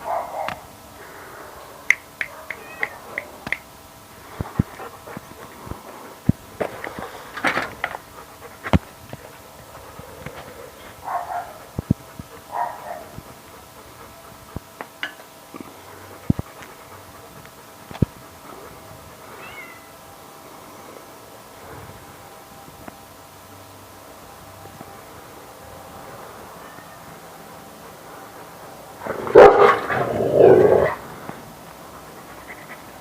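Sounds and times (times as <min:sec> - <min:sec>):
cat meowing: 0:02.4 - 0:03.2, 0:19.4 - 0:19.9.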